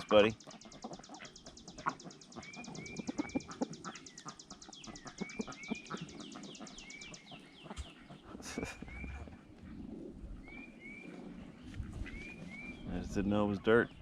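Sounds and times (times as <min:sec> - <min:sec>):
bird trilling: 0:00.0 - 0:09.3
short chirping calls: 0:00.0 - 0:09.3.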